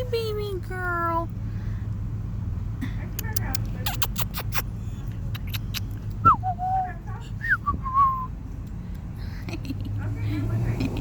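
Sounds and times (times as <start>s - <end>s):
idling car hum: 0.0s - 11.0s
sharp clicks: 3.2s - 6.2s
person whistling: 7.4s - 8.3s.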